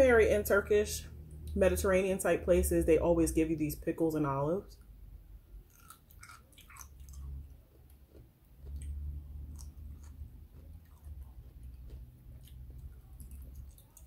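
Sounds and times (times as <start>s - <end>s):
person chewing: 5.6s - 14.0s.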